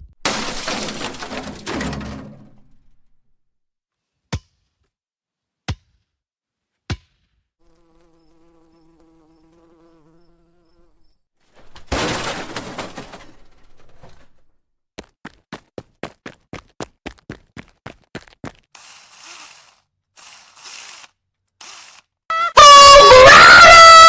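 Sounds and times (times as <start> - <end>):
fly buzzing: 7.6 - 11.2, 18.8 - 22.0.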